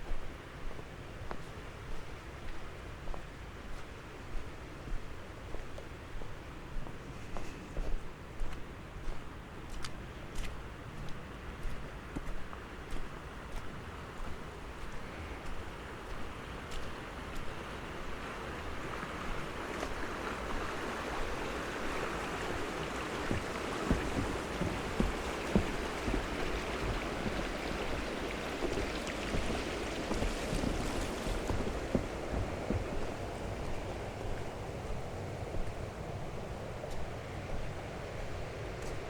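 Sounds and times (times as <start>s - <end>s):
footsteps in snow: 22.5s - 39.0s
steady rushing noise: 23.3s - 39.0s.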